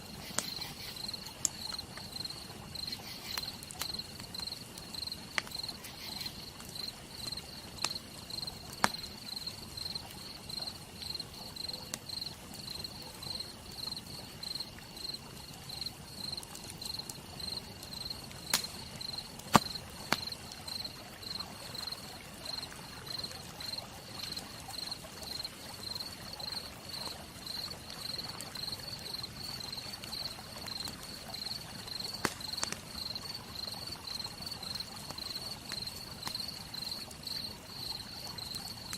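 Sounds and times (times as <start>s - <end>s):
campfire crackling: 0.0s - 38.9s
cricket chirping: 0.0s - 38.9s
sharp fire pops: 8.7s - 9.1s, 18.4s - 20.4s, 32.2s - 32.8s.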